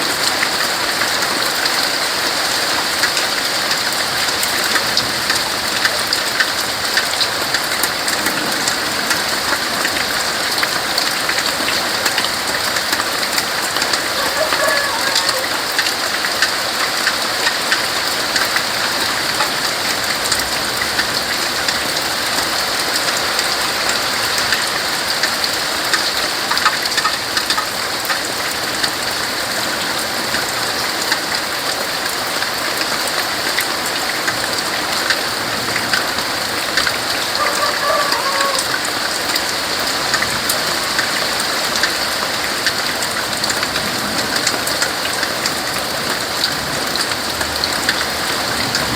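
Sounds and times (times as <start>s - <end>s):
rain falling on leaves: 0.0s - 48.9s
drips pattering: 2.9s - 29.0s.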